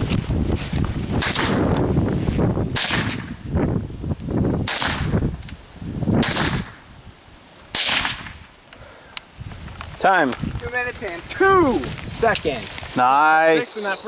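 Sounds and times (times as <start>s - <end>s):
rifle shots: 2.7s - 3.4s, 4.6s - 5.2s, 6.2s - 6.8s, 7.7s - 8.4s.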